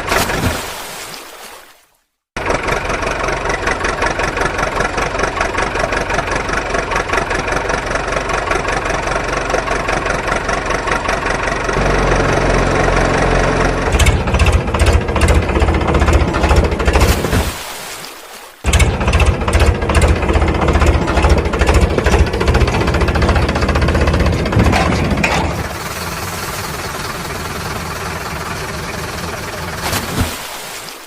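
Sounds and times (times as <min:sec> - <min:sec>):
heavy engine chugging: 0:02.4 - 0:17.0, 0:18.7 - 0:29.9
heavy engine knocks: 0:09.5 - 0:17.3, 0:18.7 - 0:29.8.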